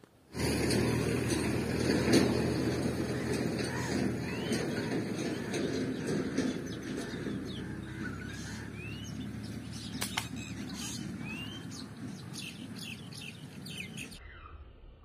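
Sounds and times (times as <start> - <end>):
small birds chirping: 3.0 - 14.6
sharp click: 10.0 - 10.4.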